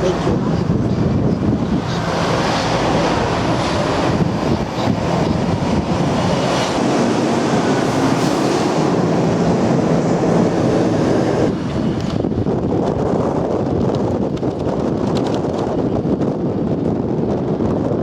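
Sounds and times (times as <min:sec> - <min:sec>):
vehicle running rumble and hiss: 0:02.1 - 0:11.9.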